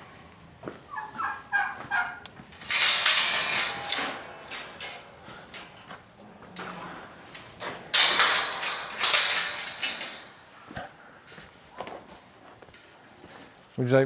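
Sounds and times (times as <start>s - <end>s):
turkey gobbling: 0.9s - 2.2s.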